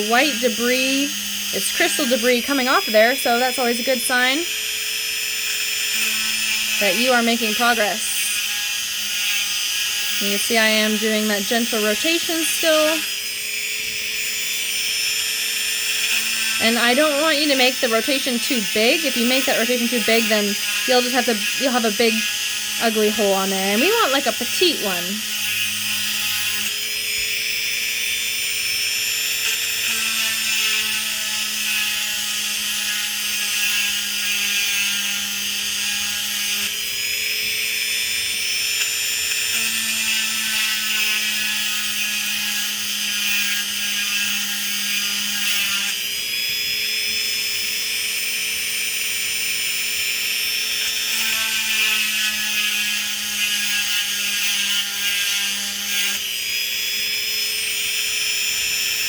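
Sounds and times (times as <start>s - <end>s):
rotary tool motor whine: 0.0s - 59.0s
hissy grinding noise: 6.8s - 8.5s.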